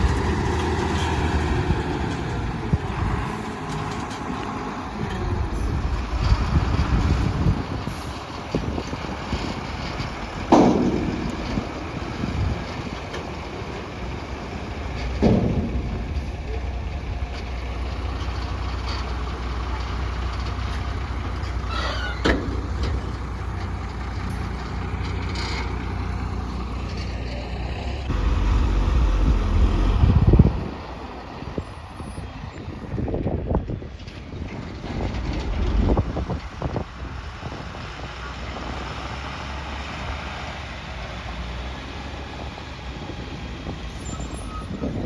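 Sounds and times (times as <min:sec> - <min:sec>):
diesel engine running under load: 0:00.0 - 0:45.0
heavy thumps: 0:15.0 - 0:17.5.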